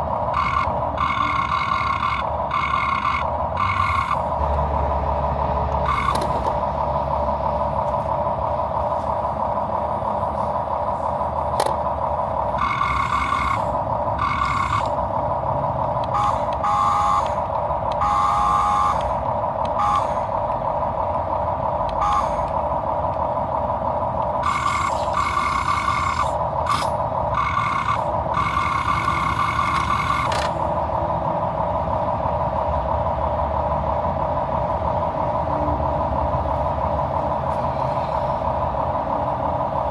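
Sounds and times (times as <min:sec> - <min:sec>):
small electric motors whining: 0:24.4 - 0:30.6.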